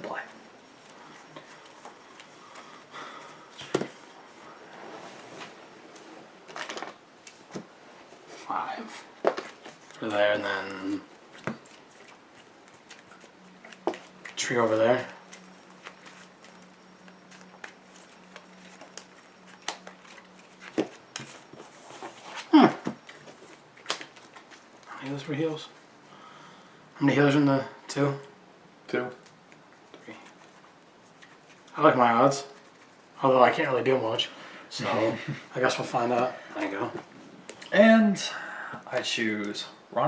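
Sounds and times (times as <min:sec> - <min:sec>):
low steady hum: 0:00.0 - 0:40.0
trading cards rustling: 0:09.2 - 0:25.8.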